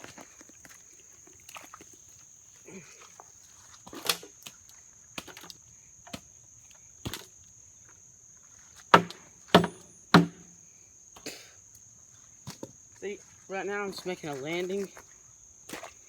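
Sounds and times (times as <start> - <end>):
high insect trill: 0.0 - 16.0
shovel chopping into wet dirt: 9.0 - 10.4.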